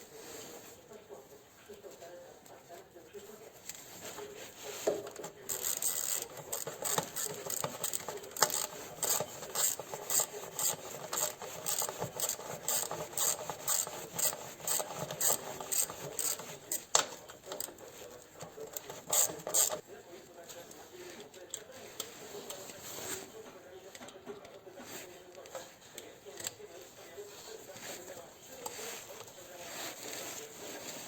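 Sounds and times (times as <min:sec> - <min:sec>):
hand file rasping: 0:04.8 - 0:17.8, 0:18.5 - 0:19.8.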